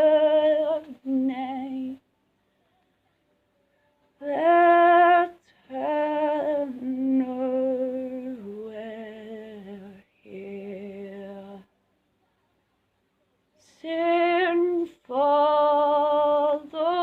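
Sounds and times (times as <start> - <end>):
woman singing unaccompanied: 0.0 - 2.0, 4.0 - 11.8, 13.6 - 17.0.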